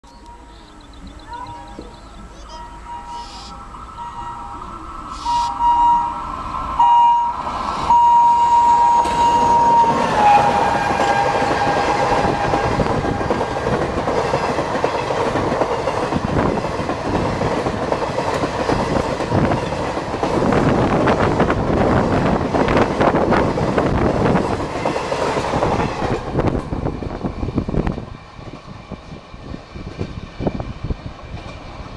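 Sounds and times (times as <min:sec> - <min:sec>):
train horn blasts: 0:02.4 - 0:13.5
train wheels clacking on rails: 0:07.6 - 0:31.9.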